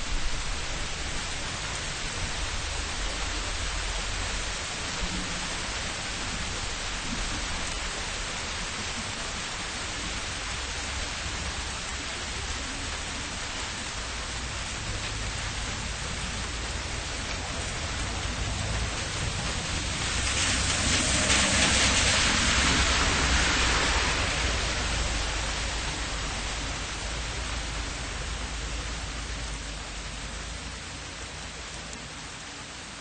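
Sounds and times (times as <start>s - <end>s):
distant traffic rumble: 0.0s - 33.0s
rain falling on street: 0.0s - 33.0s
vehicle tyres hissing on wet road: 0.0s - 33.0s.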